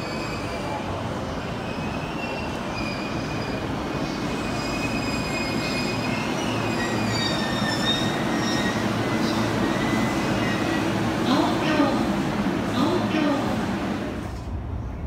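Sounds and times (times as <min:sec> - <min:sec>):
electric train rumbling: 0:00.0 - 0:15.0
high squeals: 0:01.6 - 0:10.9.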